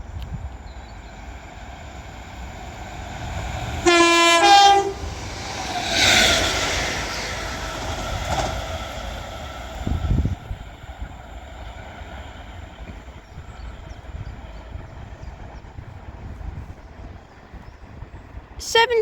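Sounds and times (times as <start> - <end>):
train passing: 0.0 - 19.0
two-tone train horn: 3.8 - 5.2.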